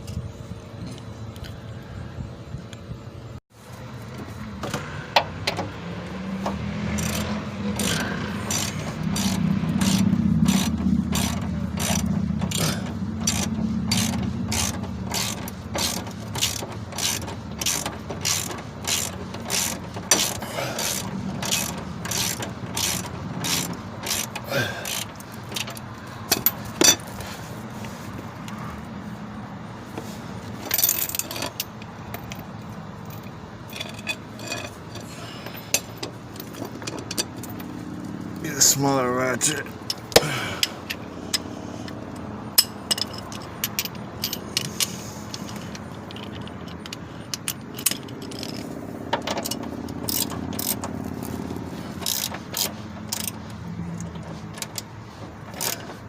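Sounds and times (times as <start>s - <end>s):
socket ratchet clicking: 6.9s - 27.0s, 42.2s - 55.9s.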